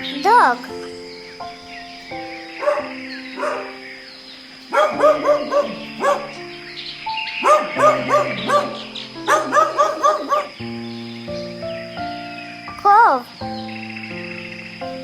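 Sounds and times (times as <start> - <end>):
light background music: 0.0 - 15.0
dog barking: 2.6 - 3.8, 4.7 - 6.4, 7.4 - 10.6.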